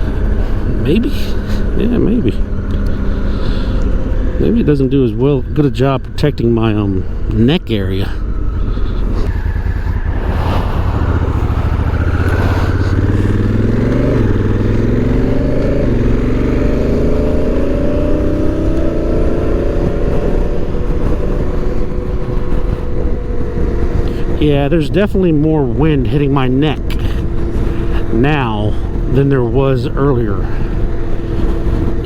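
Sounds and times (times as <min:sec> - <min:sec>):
motorcycle engine running: 0:00.0 - 0:32.0
wind rushing: 0:08.2 - 0:24.7.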